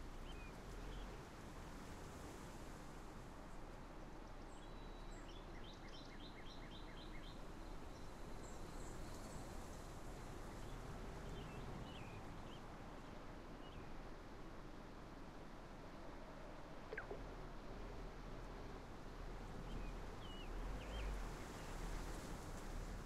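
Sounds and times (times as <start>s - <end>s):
faint bird chirps: 16.9s - 17.2s.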